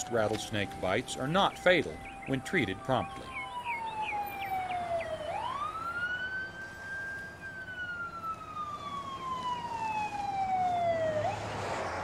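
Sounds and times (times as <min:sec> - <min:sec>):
ambulance siren wailing: 0:00.0 - 0:12.0
short high siren chirps: 0:02.0 - 0:11.5.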